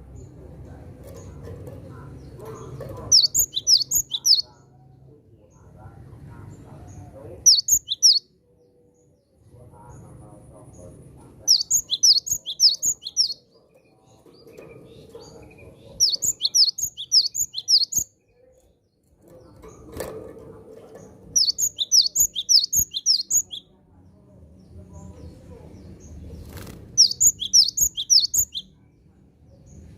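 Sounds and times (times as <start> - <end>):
bird singing sharp high notes: 3.1 - 4.4, 7.5 - 8.2, 11.5 - 13.4, 16.0 - 18.0, 21.4 - 23.6, 27.0 - 28.6.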